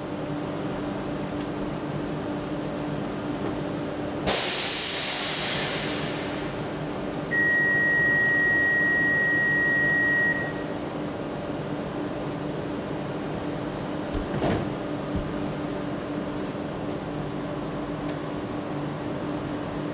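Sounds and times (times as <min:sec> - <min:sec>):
loud hiss: 0:04.3 - 0:06.6
steady high beep: 0:07.3 - 0:10.8.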